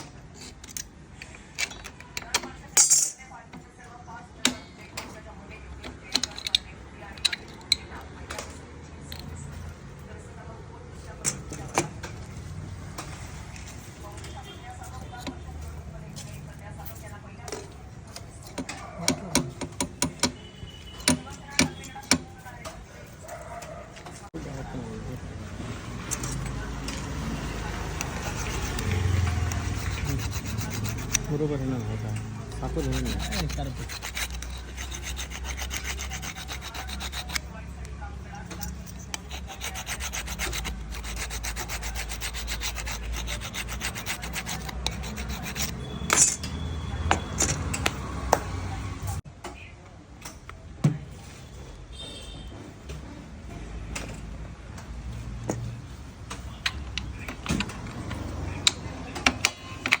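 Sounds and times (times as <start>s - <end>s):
brake lining rubbing on abrasive: 27.6s - 37.6s, 38.6s - 46.4s.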